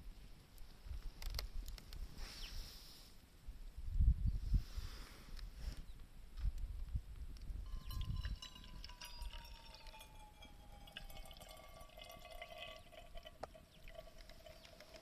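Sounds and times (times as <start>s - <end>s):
thin whistling tones: 7.7s - 11.8s.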